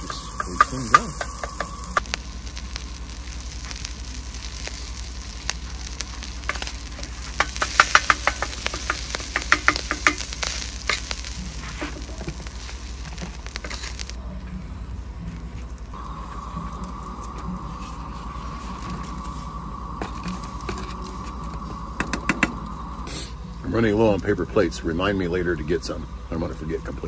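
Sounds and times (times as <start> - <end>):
sausage sizzling in a pan: 0.0 - 14.2, 16.0 - 27.0.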